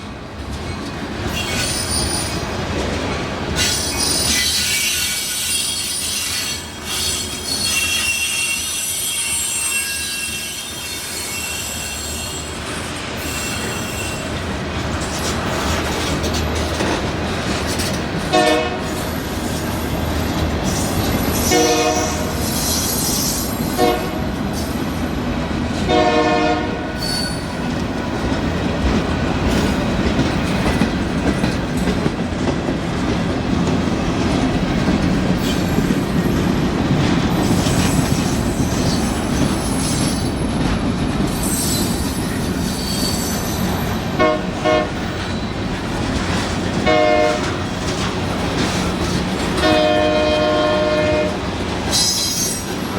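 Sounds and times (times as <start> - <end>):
freight train rumbling past: 0.0 - 52.9
locomotive air horn blasts: 18.3 - 18.9, 21.4 - 22.4, 23.8 - 24.3, 25.9 - 27.0, 44.2 - 45.1, 46.8 - 47.6, 49.6 - 51.4.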